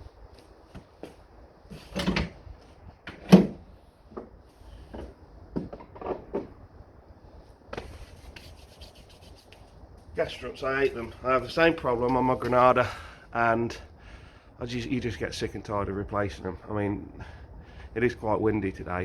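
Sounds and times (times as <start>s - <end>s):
knocks and clunks of handling: 1.7s - 2.4s, 3.0s - 6.6s.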